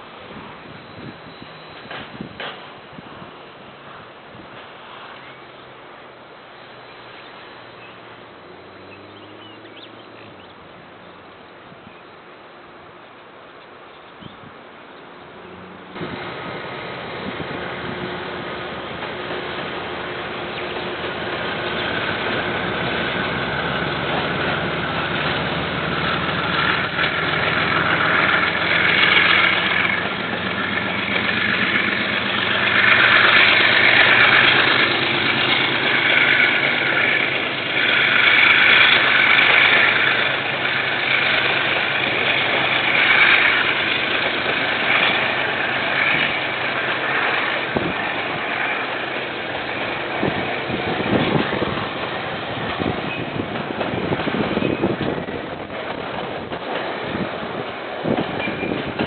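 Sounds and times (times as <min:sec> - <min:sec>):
wheels on rails: 0:00.6 - 0:03.2, 0:14.9 - 0:59.0
locomotive engine running: 0:15.0 - 0:59.0.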